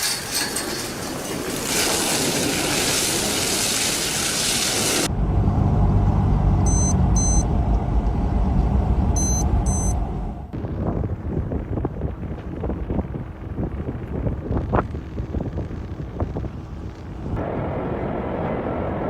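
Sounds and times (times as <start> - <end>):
low rumble: 1.4 - 19.0
short high electronic beeps: 6.7 - 7.5, 9.2 - 10.0.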